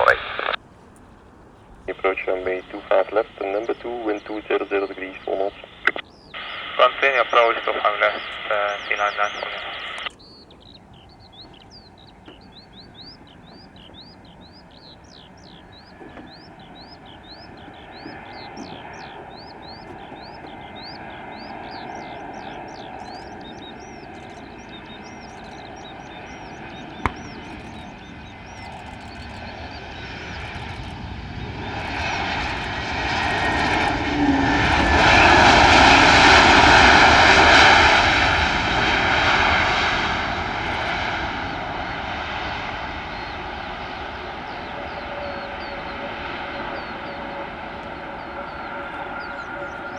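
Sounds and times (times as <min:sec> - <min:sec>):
airliner engine noise: 0:00.0 - 0:49.9
bird chirping: 0:00.0 - 0:49.9
sharp click: 0:27.0 - 0:27.9.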